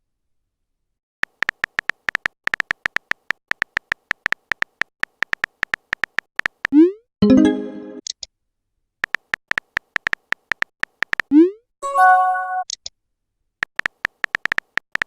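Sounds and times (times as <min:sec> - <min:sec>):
phone keyboard typing beeps: 0:01.2 - 0:08.1.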